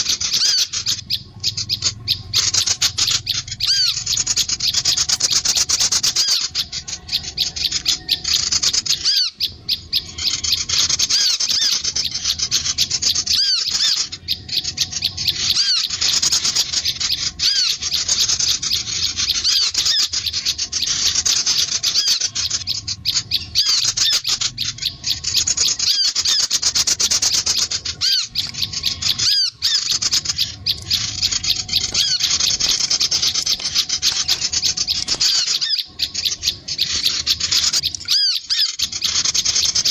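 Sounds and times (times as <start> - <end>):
songbirds chattering: 0.0 - 39.9.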